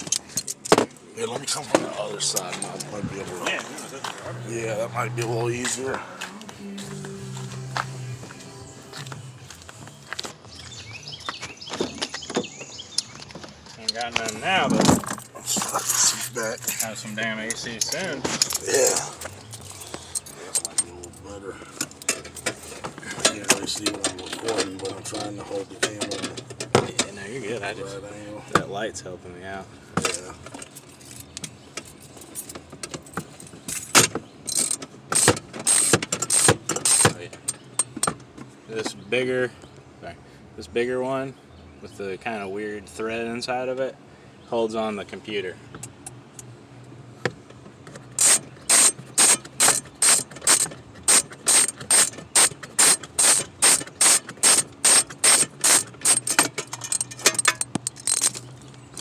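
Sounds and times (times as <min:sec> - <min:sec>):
socket ratchet clicking: 0:34.5 - 0:38.1, 0:48.2 - 0:58.4
metal hand tools clinking: 0:48.2 - 0:59.0.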